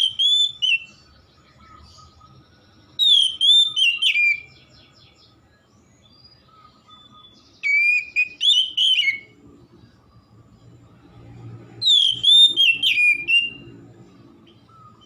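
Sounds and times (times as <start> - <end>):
bird singing whistled phrases: 0.0 - 5.2, 6.0 - 9.4, 11.8 - 13.8.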